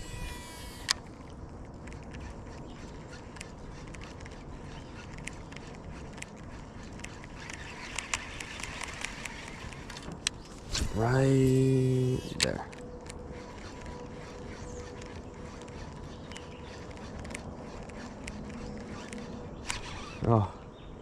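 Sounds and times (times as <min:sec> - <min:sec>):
light clicks and ticks: 0:00.8 - 0:10.5.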